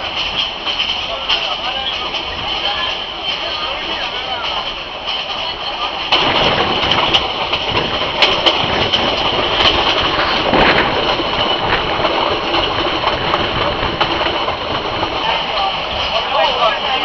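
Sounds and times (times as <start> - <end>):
train wheels rumbling and rattling: 0.0 - 17.0.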